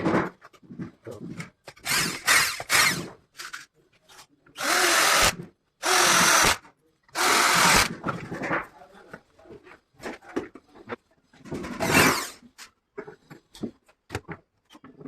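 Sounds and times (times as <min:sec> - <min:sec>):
power drill running: 0:01.8 - 0:03.0, 0:04.6 - 0:06.6, 0:07.2 - 0:07.9.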